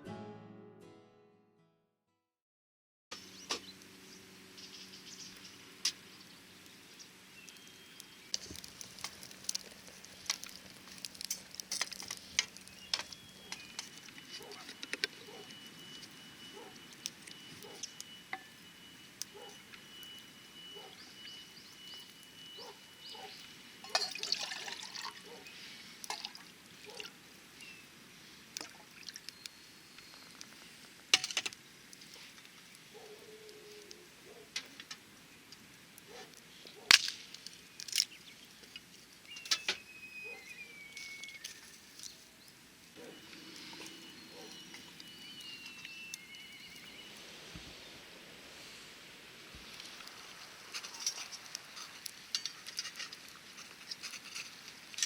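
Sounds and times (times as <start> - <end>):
faint steady high tone: 12.8 - 24.2, 43.0 - 48.0
metal cookware clinking: 23.8 - 24.6
water pouring and trickling: 23.8 - 25.3, 26.0 - 26.6, 28.6 - 29.4.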